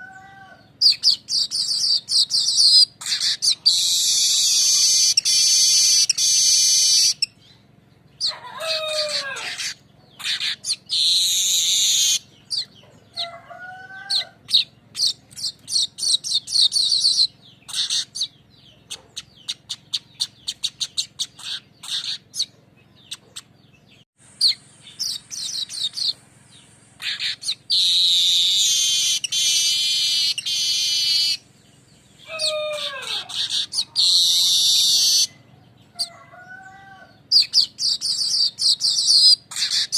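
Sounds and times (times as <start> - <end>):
weaver bird singing: 0.0 - 39.9.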